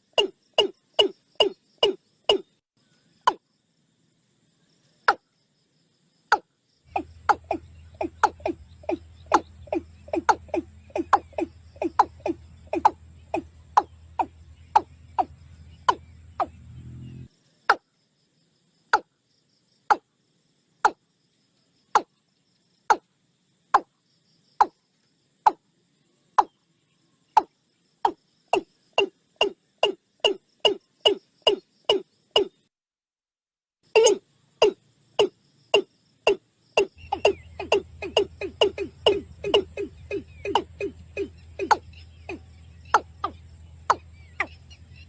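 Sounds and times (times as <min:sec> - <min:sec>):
low hum: 0:06.9 - 0:17.3, 0:37.0 - 0:45.0.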